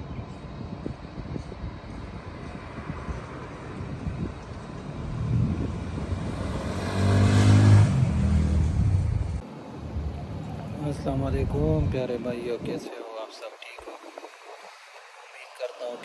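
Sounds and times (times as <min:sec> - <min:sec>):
steady traffic noise: 0:00.0 - 0:16.0
vehicle engine passing by: 0:02.7 - 0:09.4.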